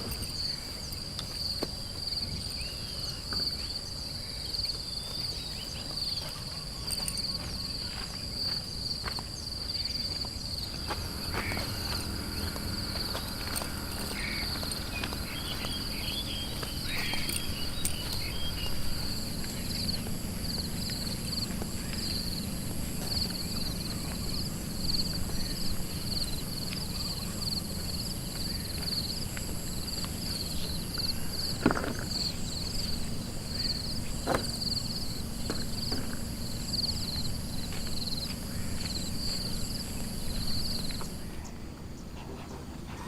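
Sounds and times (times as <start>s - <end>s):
insects trilling: 0.0s - 43.0s.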